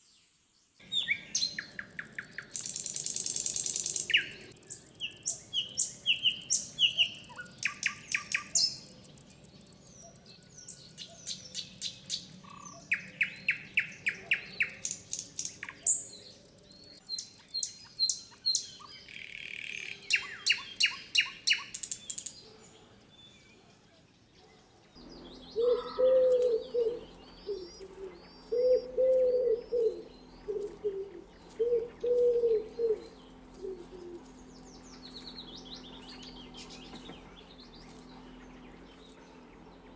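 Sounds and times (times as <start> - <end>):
nightingale singing: 0.0 - 22.6, 25.0 - 39.9
small bird chirping high: 0.8 - 22.5, 25.0 - 39.6
wood pigeon cooing: 25.6 - 34.4.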